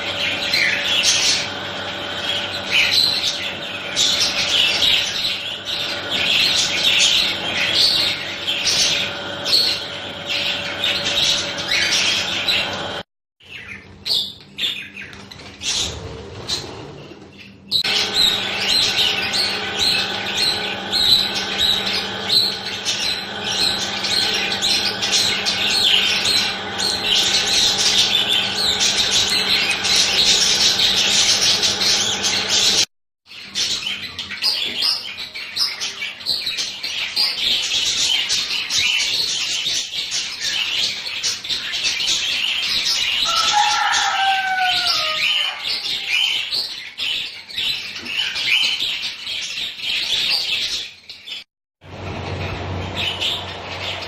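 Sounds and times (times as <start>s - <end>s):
budgerigars chattering: 0.0s - 15.2s, 17.8s - 32.9s, 52.0s - 54.0s.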